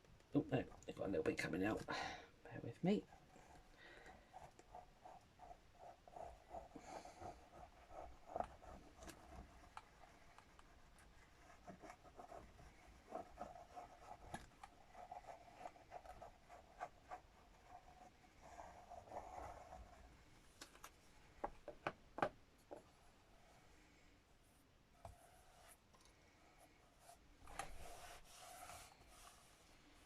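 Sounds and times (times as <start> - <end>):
paper being rubbed by hand: 27.7 - 30.0.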